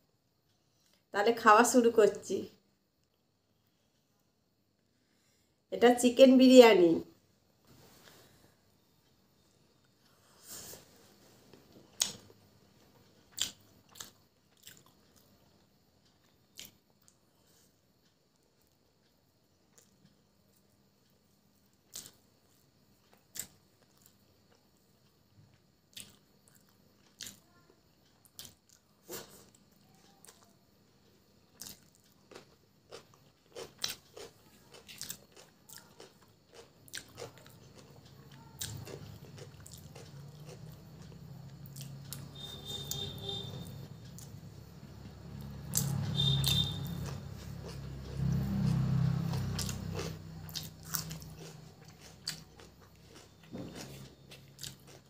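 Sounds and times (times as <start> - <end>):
crunchy chewing: 11.5 - 19.0, 19.6 - 20.7, 21.7 - 30.6, 31.4 - 55.0.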